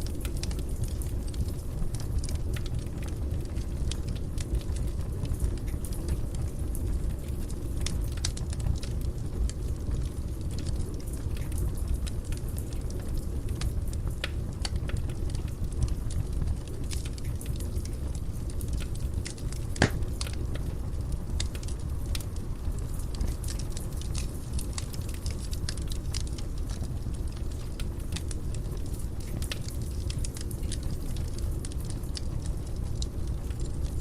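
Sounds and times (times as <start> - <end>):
fire crackling and snapping: 0.0 - 34.0
low rumble of flames: 0.0 - 34.0
loud pop from fire: 19.8 - 20.2.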